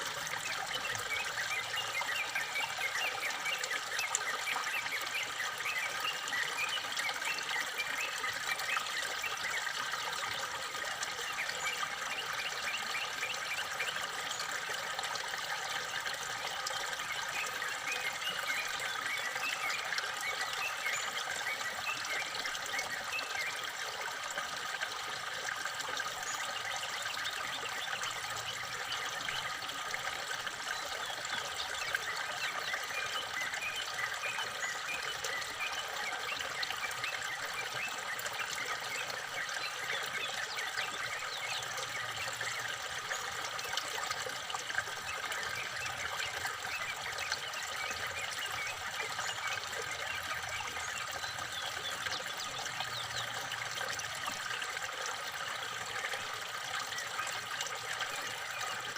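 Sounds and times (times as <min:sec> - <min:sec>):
water trickling: 0:00.0 - 0:58.9
small birds chirping: 0:26.1 - 0:53.6.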